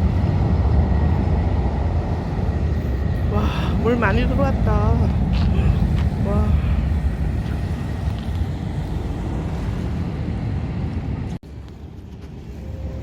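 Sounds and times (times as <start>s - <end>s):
quiet outdoor rumble: 0.0s - 13.0s
wind buffeting microphone: 0.0s - 13.0s.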